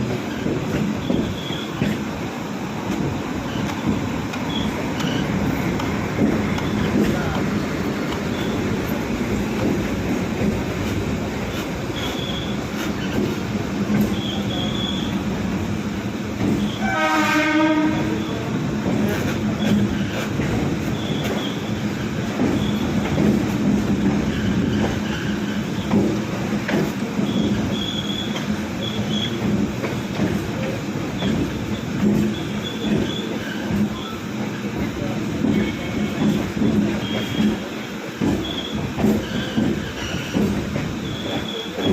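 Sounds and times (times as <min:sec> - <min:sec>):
train wheels rumbling on track: 0:00.0 - 0:41.9
high wheel squeals: 0:01.0 - 0:01.8, 0:04.5 - 0:05.4, 0:08.3 - 0:08.7, 0:11.5 - 0:13.3, 0:14.0 - 0:15.2, 0:20.9 - 0:21.8, 0:22.5 - 0:23.0, 0:27.2 - 0:29.4, 0:36.9 - 0:37.7, 0:38.3 - 0:41.9
high-pitched wheel squeals: 0:11.9 - 0:13.2, 0:27.2 - 0:29.4
multi-tone train horn: 0:16.7 - 0:18.4.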